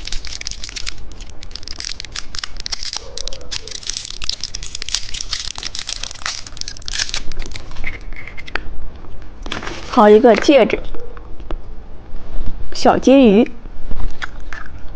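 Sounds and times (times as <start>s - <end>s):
plastic wrapper crinkling and tearing: 0.0s - 8.6s.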